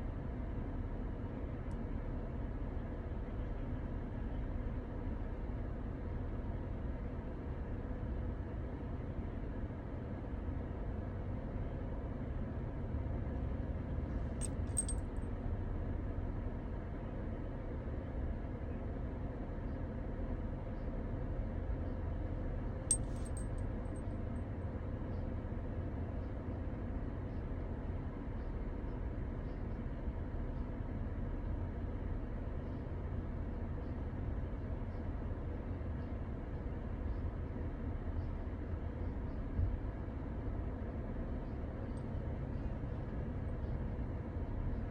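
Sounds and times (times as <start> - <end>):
small metallic clinks: 14.4 - 15.1, 22.9 - 24.1.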